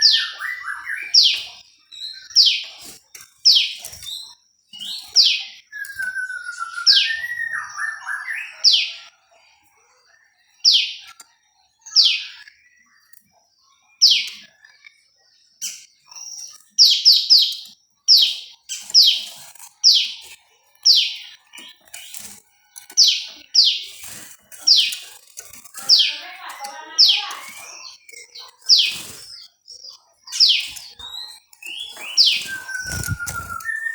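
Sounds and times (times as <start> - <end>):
bird chirps sweeping down: 30.4 - 33.9.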